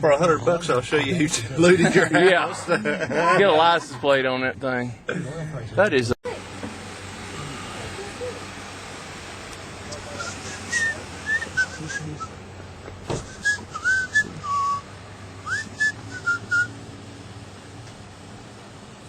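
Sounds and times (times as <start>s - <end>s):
short whistled notes: 10.1s - 12.3s, 13.2s - 16.7s.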